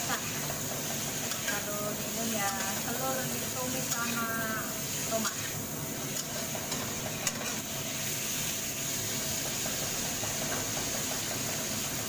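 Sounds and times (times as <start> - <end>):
tomatoes sizzling in a wok: 0.0 - 12.0
metal spatula stirring: 0.1 - 7.7.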